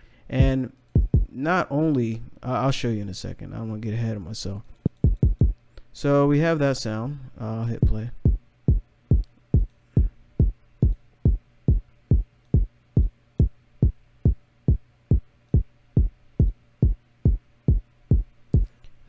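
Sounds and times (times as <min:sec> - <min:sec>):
electronic kick drum thumps: 0:00.4 - 0:01.3, 0:04.9 - 0:05.6, 0:07.8 - 0:18.8.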